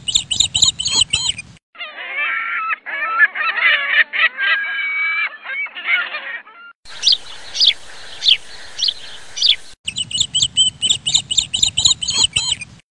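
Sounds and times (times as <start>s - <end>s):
fast high chirps: 0.0s - 1.6s, 6.9s - 12.8s
pitched bird calls: 0.0s - 12.8s.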